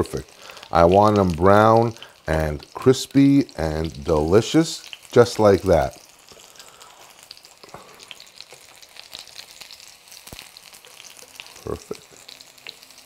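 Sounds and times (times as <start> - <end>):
fritters sizzling in oil: 0.0 - 13.0.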